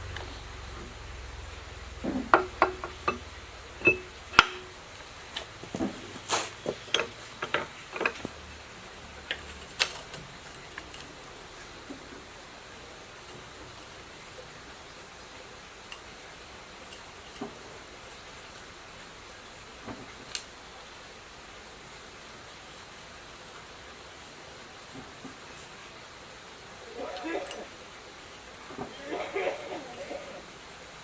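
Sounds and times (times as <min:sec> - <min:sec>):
hard objects knocking and clinking: 0:02.0 - 0:08.5.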